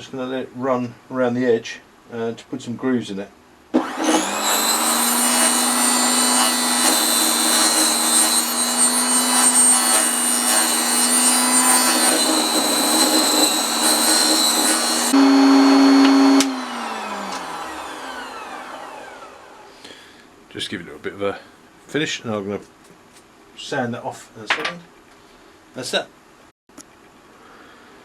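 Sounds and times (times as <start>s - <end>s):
saw whine winding down: 3.8s - 19.8s
table saw cutting wood: 3.8s - 19.8s.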